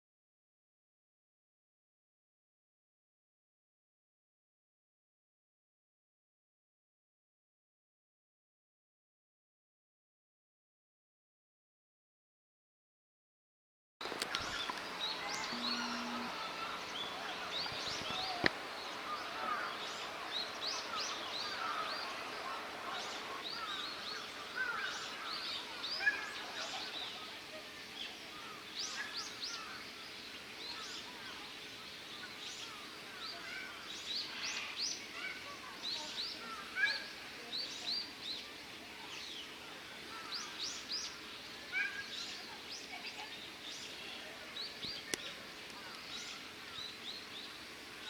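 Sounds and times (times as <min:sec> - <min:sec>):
faint background murmur: 0:14.0 - 0:48.0
small birds chirping: 0:14.0 - 0:48.0.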